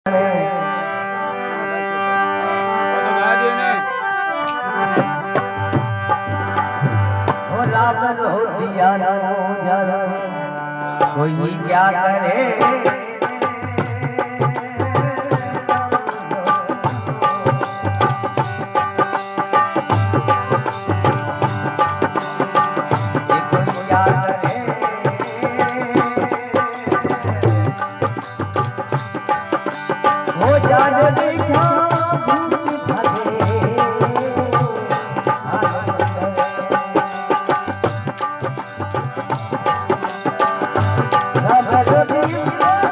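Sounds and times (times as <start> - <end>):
melodic instrument line: 0.2 - 7.4
hand drum rhythm: 4.5 - 7.8, 12.4 - 42.9.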